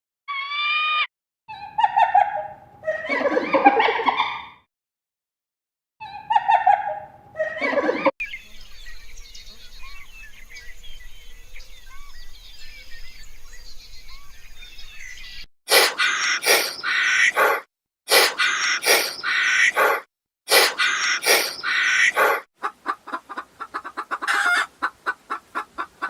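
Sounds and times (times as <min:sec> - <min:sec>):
small birds chirping: 0:08.2 - 0:17.6, 0:18.3 - 0:25.9
falling animal call: 0:15.7 - 0:22.4
loud short animal calls: 0:15.7 - 0:22.4.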